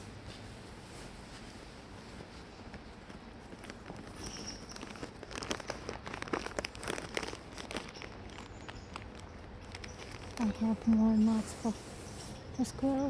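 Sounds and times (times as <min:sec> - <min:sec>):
dense crackles: 0:02.1 - 0:12.7
bag of nuts crinkling: 0:03.0 - 0:12.4.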